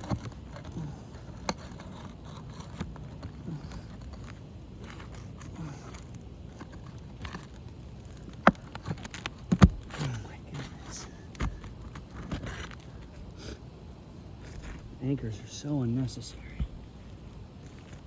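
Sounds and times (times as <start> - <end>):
roof shingles scraping: 0.0 - 13.1.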